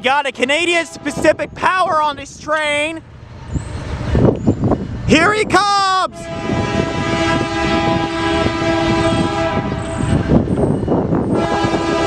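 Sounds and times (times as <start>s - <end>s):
locomotive air horn blasts: 0.7s - 1.4s, 6.1s - 10.4s, 11.3s - 12.0s.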